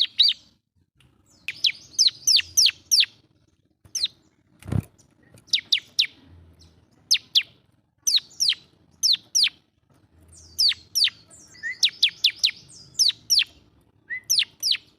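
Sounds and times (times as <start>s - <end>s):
bird singing whistled notes: 0.0s - 0.4s, 1.3s - 3.2s, 5.4s - 9.6s, 10.3s - 14.9s.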